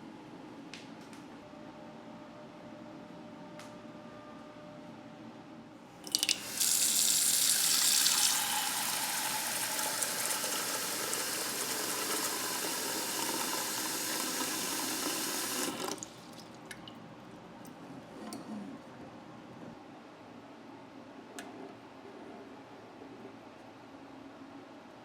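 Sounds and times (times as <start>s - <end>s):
tap water filling a pot: 6.0s - 17.0s.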